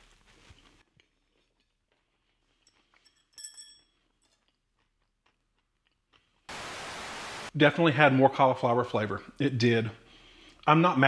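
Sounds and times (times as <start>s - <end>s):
faint chewing: 0.0s - 6.5s
bright metallic ring: 3.1s - 4.0s
steady hiss: 6.5s - 7.5s.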